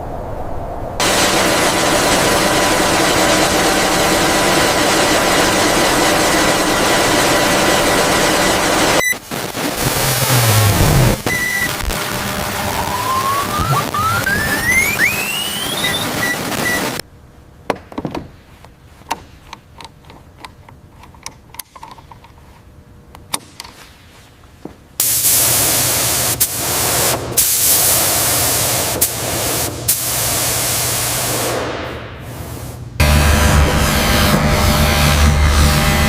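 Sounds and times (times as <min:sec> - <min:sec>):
loud steady hiss: 0:01.0 - 0:17.0, 0:25.0 - 0:35.7.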